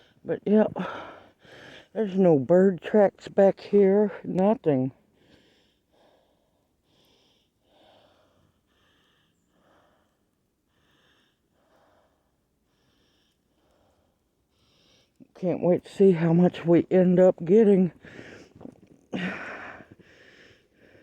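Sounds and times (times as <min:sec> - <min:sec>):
faint soft regular sounds: 0:04.9 - 0:15.3.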